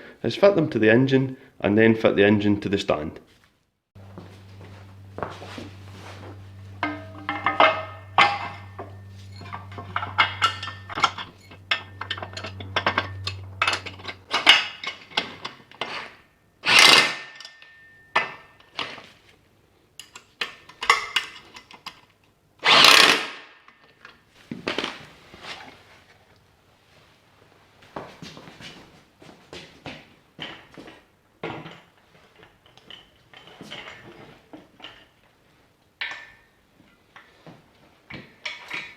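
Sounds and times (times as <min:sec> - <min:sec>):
low hum: 0:04.0 - 0:15.1
metal brackets clanking: 0:05.8 - 0:18.9
power tool bursts: 0:16.6 - 0:17.4, 0:22.6 - 0:23.6.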